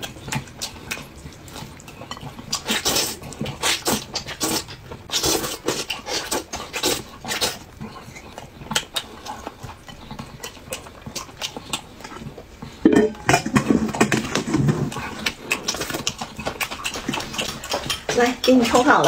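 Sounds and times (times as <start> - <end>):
man chewing and lip-smacking: 0.0 - 18.8
metal bowl knock: 12.8 - 14.2.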